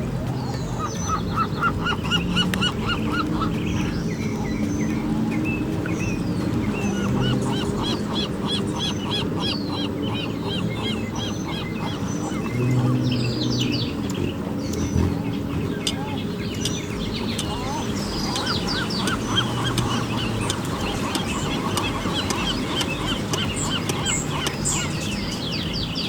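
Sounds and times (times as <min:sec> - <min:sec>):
gulls calling: 0:00.0 - 0:26.0
sea noise: 0:00.0 - 0:26.0.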